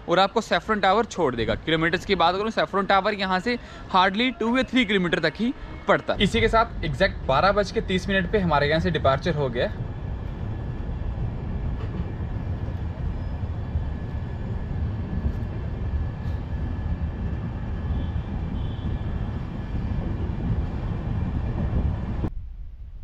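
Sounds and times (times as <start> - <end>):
train rumbling past: 3.6 - 22.3.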